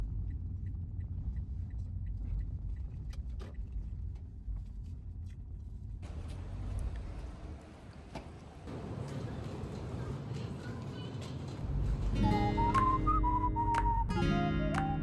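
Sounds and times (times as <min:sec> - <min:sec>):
low steady rumble: 0:00.0 - 0:08.0.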